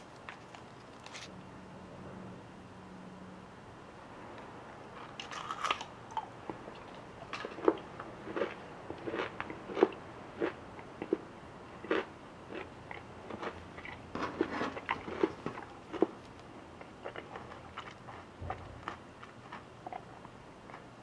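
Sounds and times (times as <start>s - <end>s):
chocolate crunching while chewed: 5.0s - 11.2s, 11.8s - 20.9s.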